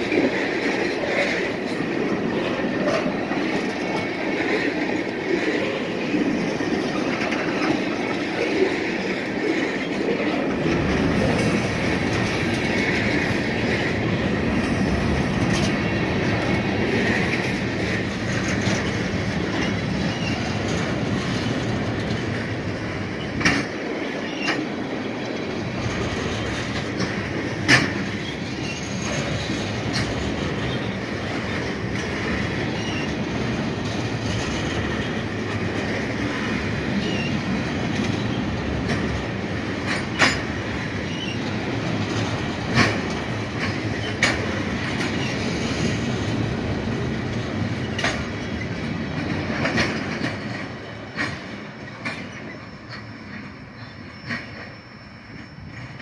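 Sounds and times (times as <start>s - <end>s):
train wheels rumbling on rail: 0.0s - 56.0s
wheels clacking over rail joints: 0.0s - 56.0s
faint high wheel squeal: 28.2s - 29.1s, 52.1s - 56.0s.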